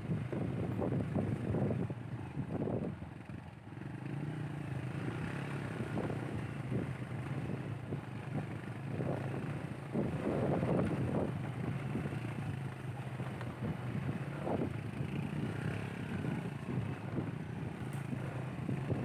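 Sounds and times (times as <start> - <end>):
motorcycle engine running: 0.0 - 19.0
wind buffeting microphone: 5.8 - 12.6, 13.2 - 19.0.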